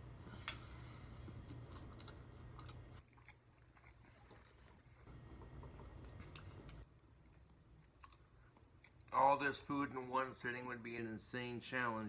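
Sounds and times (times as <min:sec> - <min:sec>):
close-up chewing: 0:01.2 - 0:09.2.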